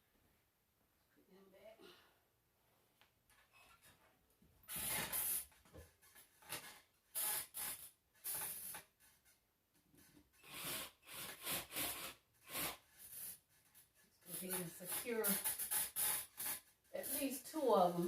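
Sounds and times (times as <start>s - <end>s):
hands rubbing and scraping parts: 12.4s - 18.0s.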